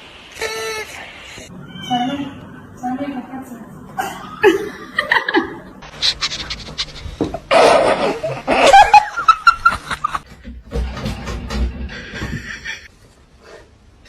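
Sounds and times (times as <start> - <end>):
person laughing: 4.0 - 10.2, 11.9 - 12.9.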